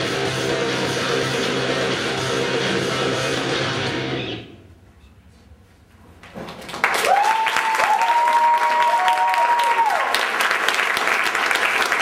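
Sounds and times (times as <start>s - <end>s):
guitar music: 0.0s - 4.5s
audience applause and cheering: 6.6s - 12.0s.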